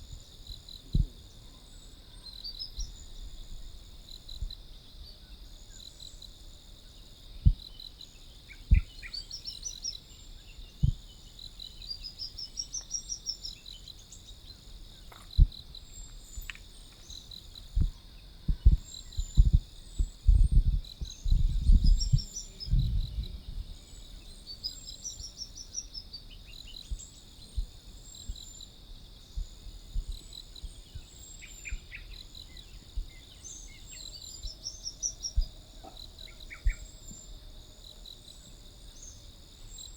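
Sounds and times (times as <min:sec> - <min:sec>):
bird song: 0:00.0 - 0:39.9
insects chorus: 0:00.0 - 0:39.9
low thumps and rumbles: 0:17.8 - 0:23.7.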